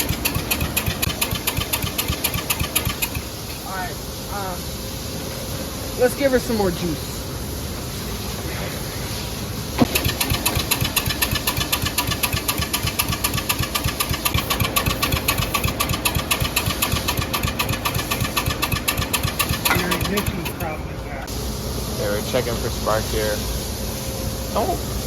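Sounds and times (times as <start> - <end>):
lawn tractor engine cranking: 0.0 - 3.6, 9.8 - 20.8.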